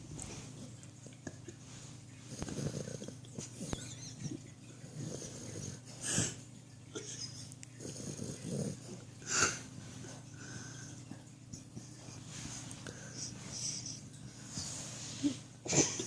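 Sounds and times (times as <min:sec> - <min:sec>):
dog snoring breaths: 0:02.2 - 0:03.9, 0:04.8 - 0:06.4, 0:07.8 - 0:10.9.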